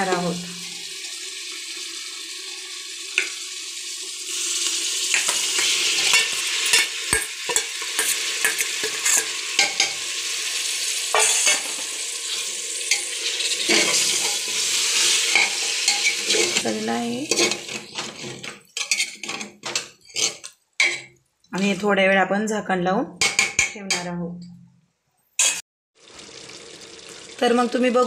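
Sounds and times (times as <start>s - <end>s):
chicken sizzling in hot oil: 0.0s - 21.1s, 25.4s - 28.0s
steel spoon scraping and clinking: 5.1s - 10.0s, 11.1s - 11.8s, 12.9s - 16.6s, 17.3s - 21.1s, 25.4s - 25.6s.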